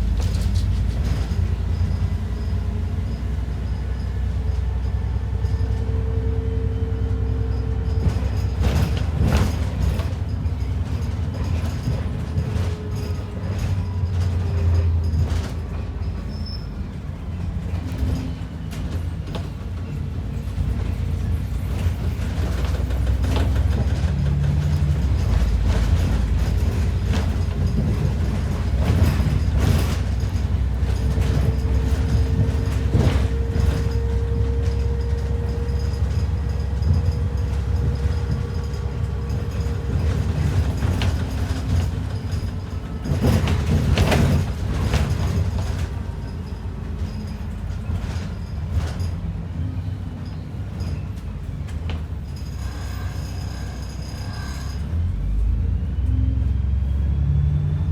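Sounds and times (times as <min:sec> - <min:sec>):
bus body rattling and creaking: 0:00.0 - 0:57.9
bus engine and road rumble: 0:00.0 - 0:57.9.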